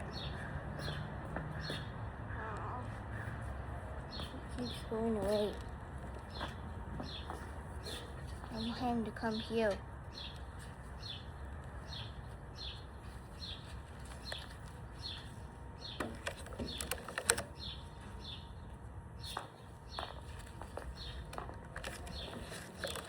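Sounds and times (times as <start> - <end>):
bird chirping: 6.2 - 23.0
sharp clicks: 16.0 - 17.7.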